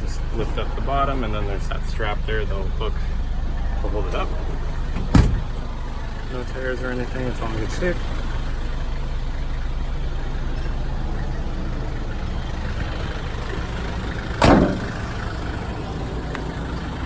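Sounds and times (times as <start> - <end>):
diesel engine idling: 0.0 - 17.0
loud thump: 5.0 - 5.6, 14.4 - 15.0.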